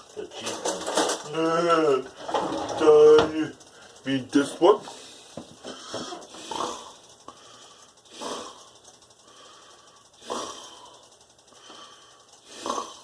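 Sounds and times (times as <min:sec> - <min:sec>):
person breathing loudly: 0:04.8 - 0:13.0.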